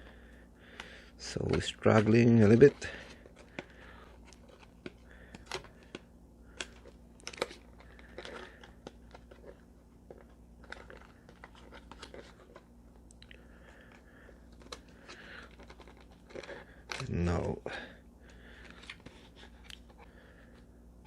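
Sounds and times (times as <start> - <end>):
packaging being opened by hand: 0.8 - 17.6.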